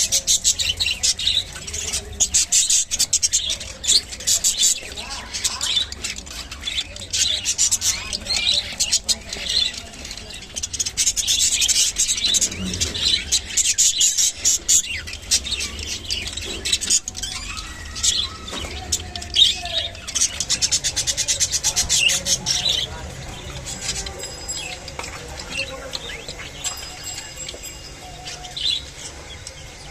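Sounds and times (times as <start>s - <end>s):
budgerigars chirping: 0.0s - 29.9s.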